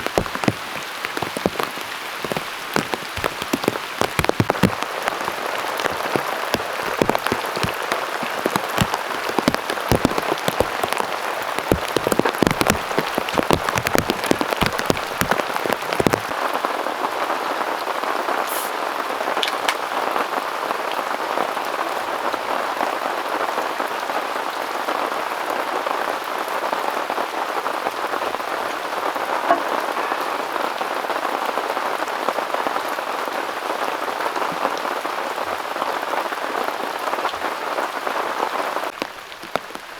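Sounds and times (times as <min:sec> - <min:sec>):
drops striking a surface: 0:00.0 - 0:04.8, 0:05.8 - 0:11.0, 0:11.6 - 0:16.3
heavy rain: 0:00.0 - 0:39.9.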